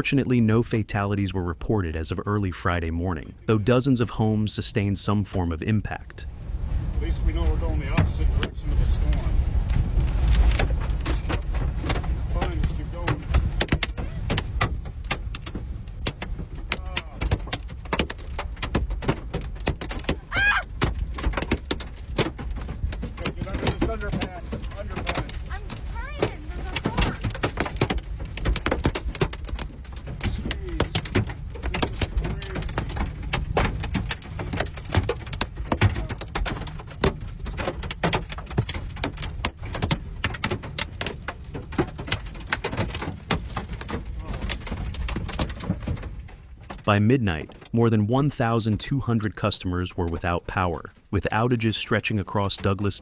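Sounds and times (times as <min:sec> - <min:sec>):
moving car rumble: 0:03.1 - 0:47.8
hail banging on car roof: 0:06.3 - 0:47.8.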